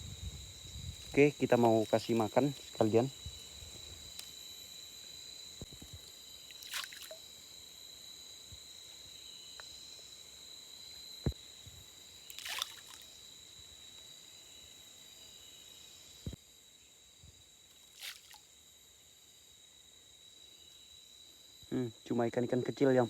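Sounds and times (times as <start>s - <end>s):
insects droning: 0.0s - 23.0s
fish feed pattering on water: 6.5s - 7.2s, 12.3s - 13.1s, 18.0s - 18.4s.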